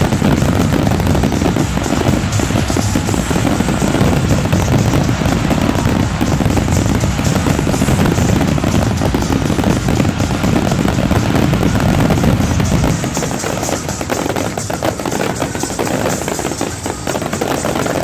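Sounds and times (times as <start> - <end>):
fireworks bursting and crackling: 0.0 - 18.0.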